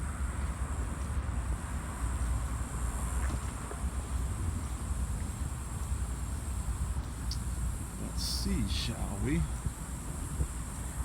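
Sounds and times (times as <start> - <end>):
faint high hiss: 7.2 - 10.0.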